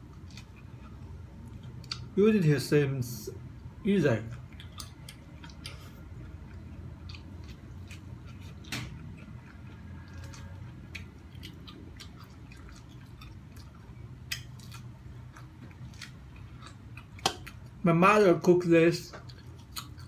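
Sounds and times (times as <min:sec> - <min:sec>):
low steady hum: 0:00.0 - 0:20.0
corn being chewed crunchily: 0:04.1 - 0:17.8, 0:19.2 - 0:20.0.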